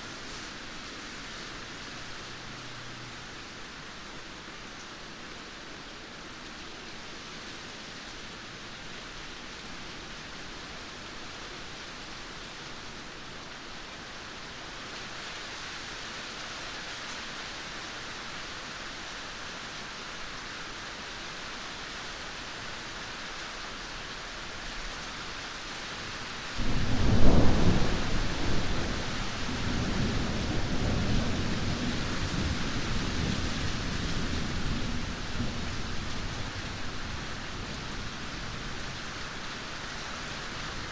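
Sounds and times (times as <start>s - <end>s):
steady rain hissing: 0.0s - 40.9s
loud thunderclap rumbling: 26.6s - 36.6s.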